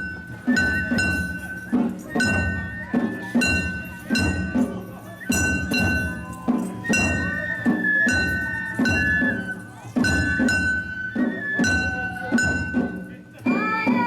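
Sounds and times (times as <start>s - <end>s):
drum strokes: 0.0s - 14.0s
ringing metallic strikes: 0.0s - 14.0s.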